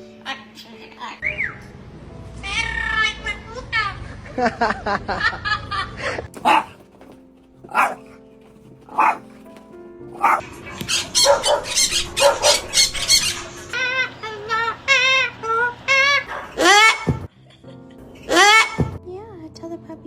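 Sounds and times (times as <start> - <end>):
dog high-pitched calls: 6.4 - 6.8, 7.7 - 8.1, 8.9 - 9.4, 10.2 - 10.4
dog barking: 6.4 - 9.6, 10.2 - 10.5, 11.2 - 12.7.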